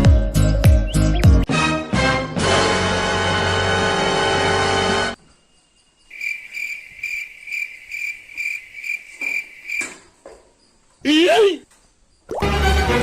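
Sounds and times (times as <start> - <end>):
background music: 0.0 - 5.2, 12.3 - 13.0
cricket chirping: 5.2 - 12.4.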